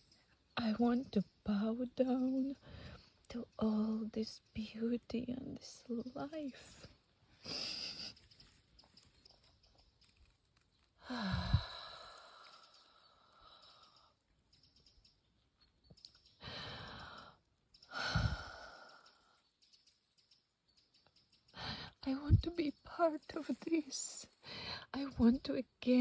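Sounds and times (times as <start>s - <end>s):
woman breathing deeply: 11.0s - 14.1s, 16.4s - 19.2s, 21.6s - 22.0s, 24.4s - 24.8s.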